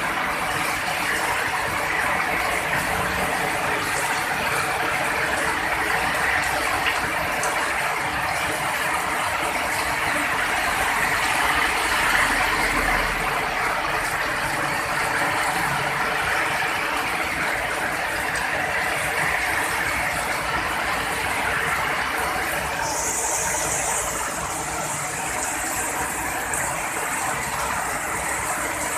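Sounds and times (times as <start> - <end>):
heavy rain falling: 0.0 - 28.9
higher brighter hiss: 22.8 - 26.0.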